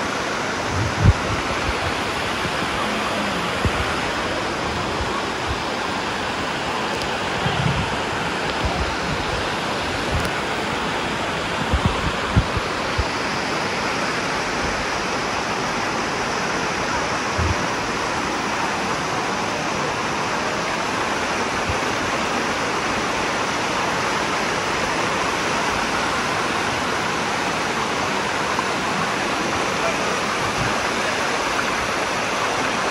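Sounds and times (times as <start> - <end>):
waterfall rushing over rocks: 0.0 - 32.9.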